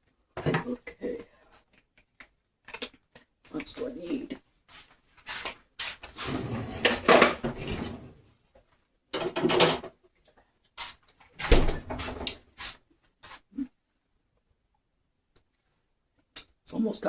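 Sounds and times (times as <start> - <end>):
drawers and cupboards clattering: 6.1 - 8.2, 9.1 - 10.0.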